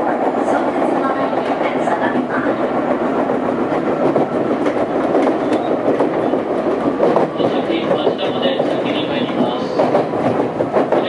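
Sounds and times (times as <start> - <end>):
train rail noise: 0.0 - 11.0
wheel knocking: 3.2 - 11.0.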